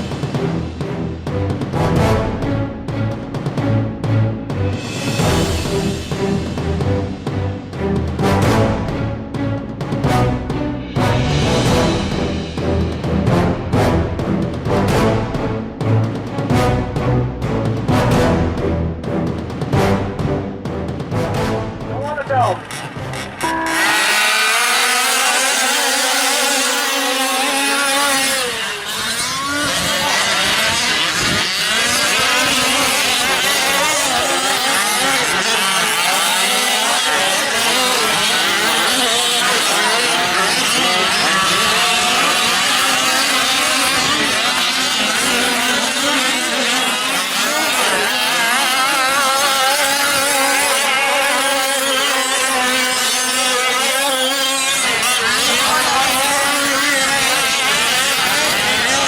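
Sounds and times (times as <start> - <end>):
rc truck engines revving: 21.8 - 59.0.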